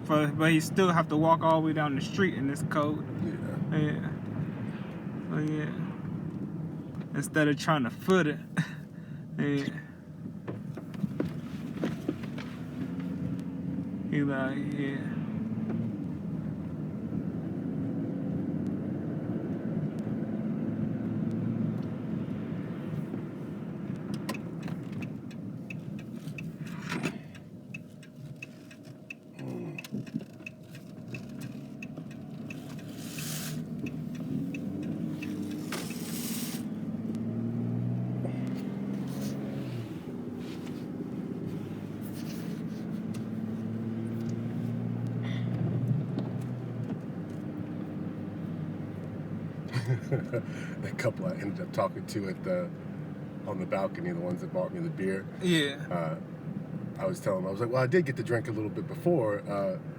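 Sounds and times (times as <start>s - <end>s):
car engine and tyre noise: 0.0s - 59.9s
loud hissing swishes: 35.6s - 36.8s.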